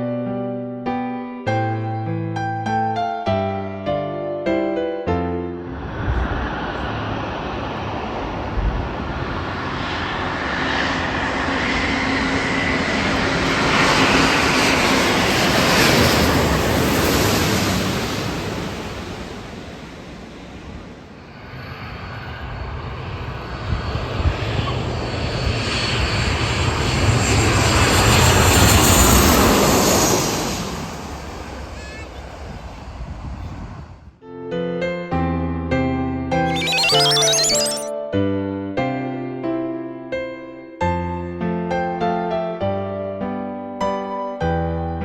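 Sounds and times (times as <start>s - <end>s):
jet airliner engine roar: 5.7s - 19.0s.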